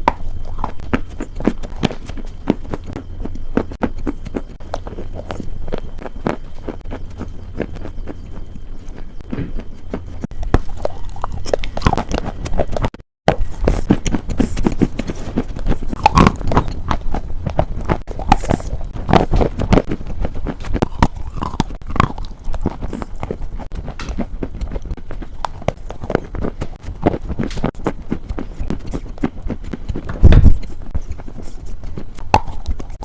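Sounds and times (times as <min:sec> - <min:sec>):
crisp crunching: 0:13.4 - 0:33.0.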